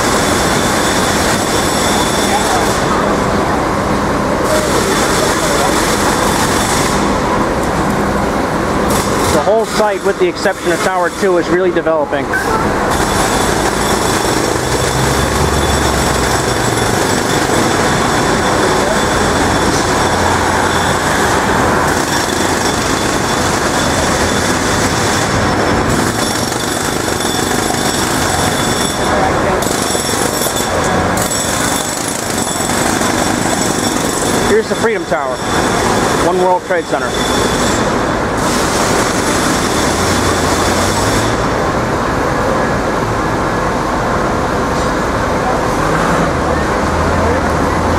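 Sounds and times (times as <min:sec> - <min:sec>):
passing traffic rumble and hiss: 0:00.0 - 0:26.0, 0:37.8 - 0:47.9
machinery rattling: 0:00.0 - 0:41.8
construction site din: 0:00.0 - 0:47.9.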